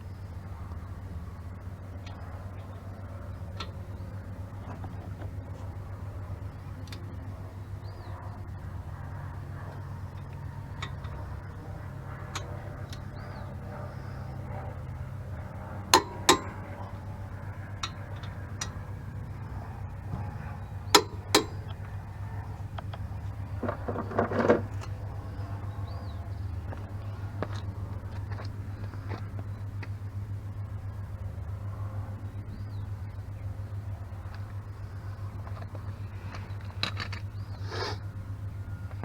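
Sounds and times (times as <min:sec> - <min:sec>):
steady low hum: 0:00.0 - 0:39.0
metal tools clinking: 0:20.9 - 0:21.8.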